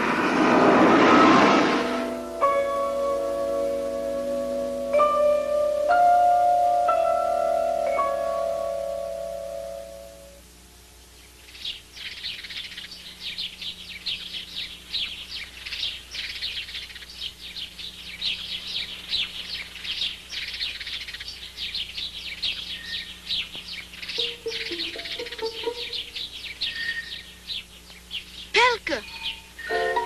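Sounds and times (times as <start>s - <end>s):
small birds chirping: 11.0s - 29.8s.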